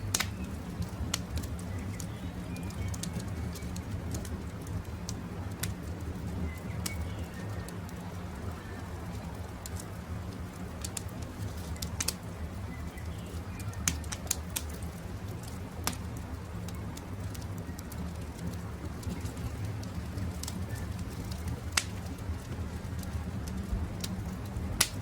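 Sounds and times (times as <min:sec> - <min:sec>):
campfire crackling: 0:00.0 - 0:25.0
steady low rumble: 0:00.0 - 0:25.0
sharp pops: 0:00.1 - 0:00.5.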